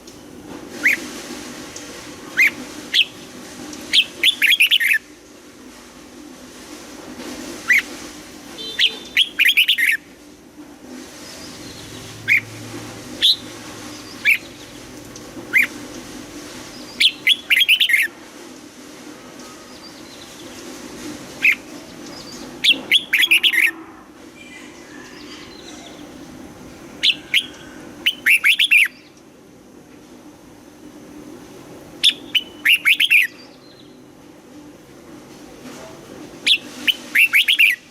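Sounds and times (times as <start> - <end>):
bulbul singing: 8.6 - 10.0, 16.8 - 18.1, 21.4 - 23.7, 27.0 - 29.1, 32.0 - 34.0, 36.5 - 37.9.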